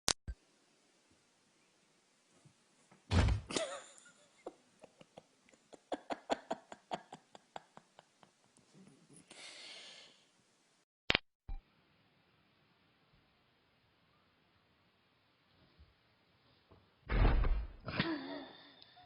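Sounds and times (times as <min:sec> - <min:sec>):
heavy thump: 0:03.1 - 0:03.5.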